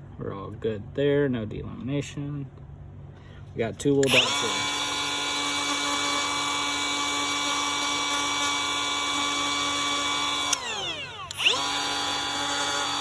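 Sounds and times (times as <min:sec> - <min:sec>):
power grinder whining: 0:04.0 - 0:13.0.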